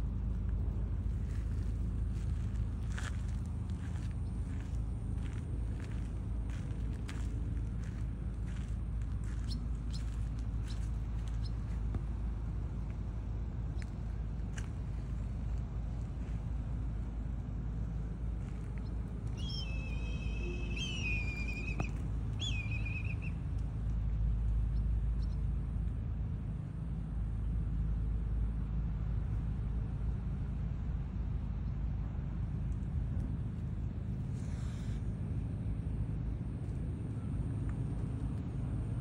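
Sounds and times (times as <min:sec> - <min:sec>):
steady low rumble: 0:00.0 - 0:39.0
bird whistled calls: 0:19.4 - 0:23.4.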